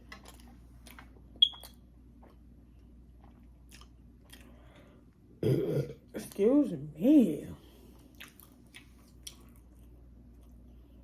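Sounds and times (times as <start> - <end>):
soft chewing: 0.0 - 5.3, 7.6 - 11.0
low-pitched burp: 5.4 - 6.0.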